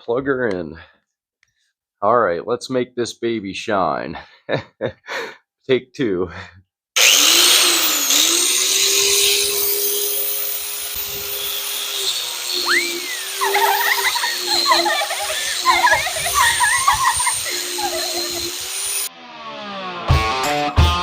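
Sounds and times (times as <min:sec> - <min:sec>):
bench grinder motor hum: 0:07.0 - 0:19.1
wavering high squiggling tones: 0:09.0 - 0:19.1.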